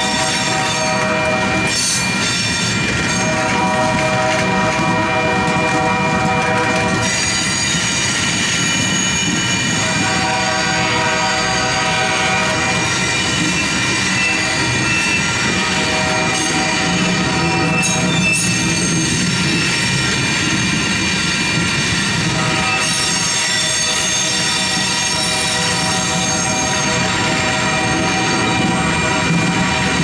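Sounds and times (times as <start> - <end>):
wheels squealing: 12.5 - 29.9.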